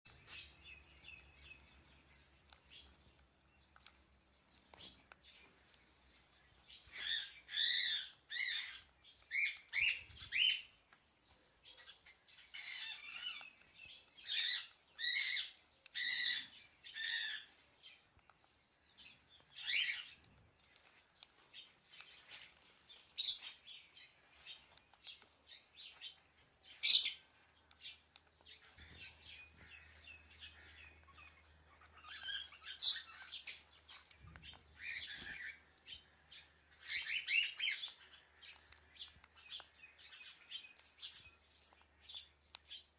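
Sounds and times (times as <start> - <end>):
parrot chirping calls: 6.9 - 10.7, 11.8 - 13.6, 14.2 - 17.5, 28.6 - 34.2, 36.8 - 38.7.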